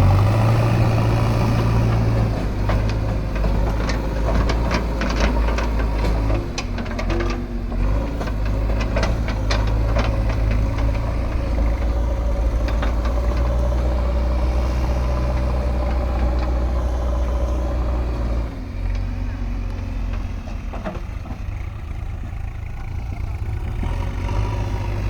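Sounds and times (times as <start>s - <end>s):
heavy diesel engine humming: 0.0s - 25.0s
sharp clicks and knocks: 1.6s - 21.4s.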